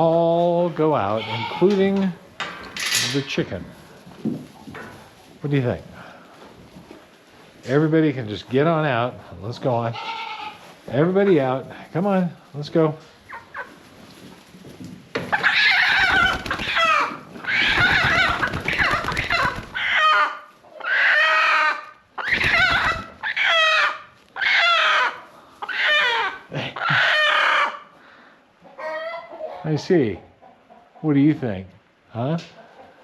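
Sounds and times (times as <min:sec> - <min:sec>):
chickens squawking: 0:00.8 - 0:02.0, 0:13.0 - 0:13.9, 0:15.2 - 0:31.0.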